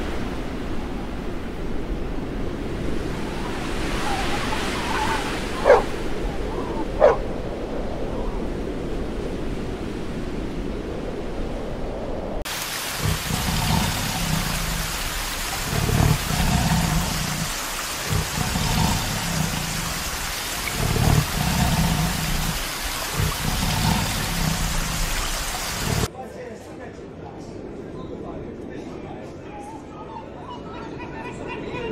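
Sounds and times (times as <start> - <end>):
falling water rushing: 2.9 - 7.2, 12.5 - 26.1
tiger growling low: 4.0 - 7.3, 12.8 - 26.1.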